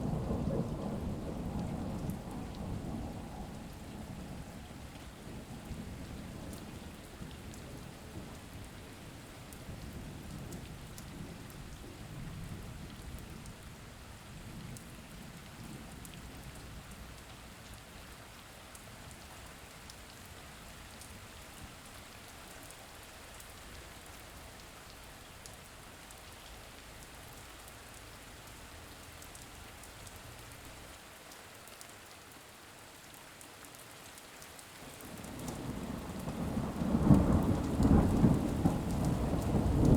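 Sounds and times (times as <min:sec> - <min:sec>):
low rumble of thunder: 0:00.0 - 0:17.6, 0:34.9 - 0:39.9
steady rain falling: 0:00.0 - 0:39.9.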